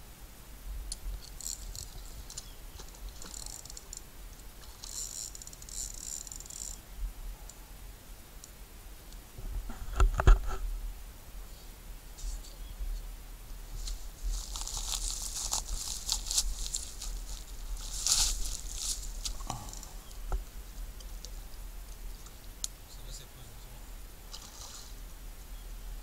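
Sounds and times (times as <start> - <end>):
fishing reel ticking: 1.3 - 4.0, 4.7 - 6.8, 14.6 - 19.9.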